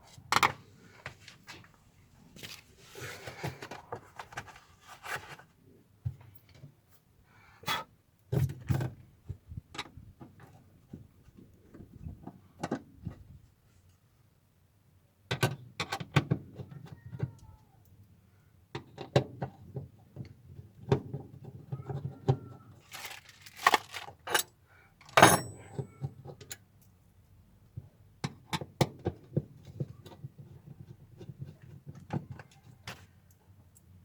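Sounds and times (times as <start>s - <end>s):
metal parts clattering: 22.8s - 25.7s
metal tools clinking: 22.9s - 25.9s.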